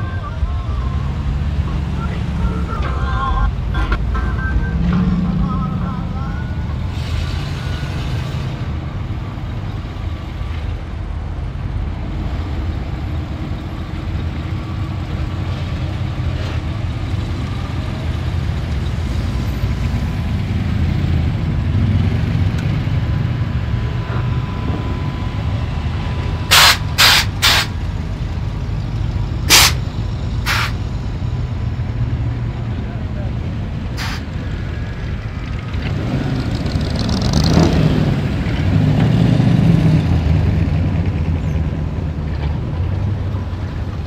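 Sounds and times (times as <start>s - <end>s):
car engines rumbling: 0.0s - 44.0s
short loud hiss bursts: 26.5s - 27.7s, 29.5s - 29.8s, 30.4s - 30.8s, 34.0s - 34.3s.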